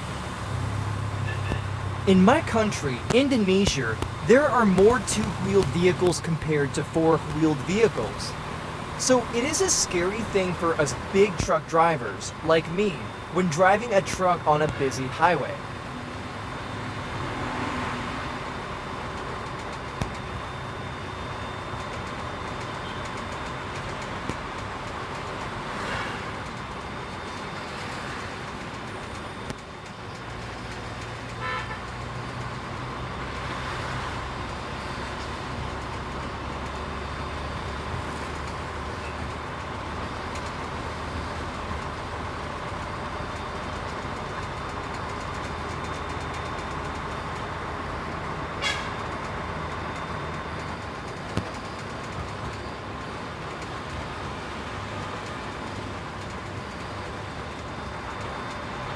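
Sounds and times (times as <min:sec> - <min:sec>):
truck diesel engine running: 0:00.0 - 0:17.3
short horn toots: 0:01.2 - 0:01.7.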